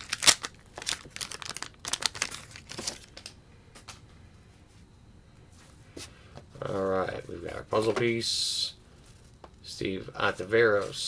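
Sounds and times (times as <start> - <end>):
wax paper wrapper crinkling: 0.0 - 3.4, 6.6 - 11.0.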